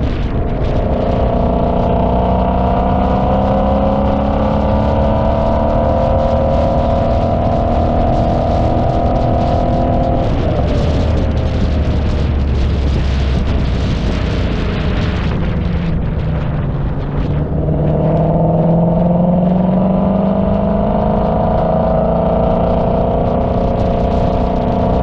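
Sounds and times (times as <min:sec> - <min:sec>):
car engine accelerating: 0:00.0 - 0:25.0
wind and road noise: 0:00.0 - 0:25.0.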